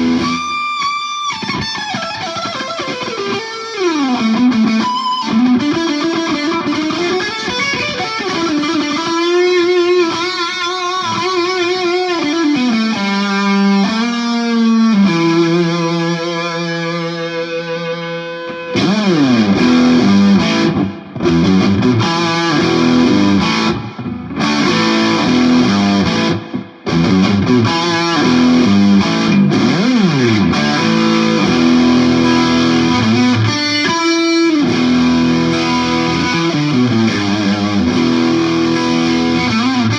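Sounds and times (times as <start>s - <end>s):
distorted electric guitar: 0.0s - 39.9s.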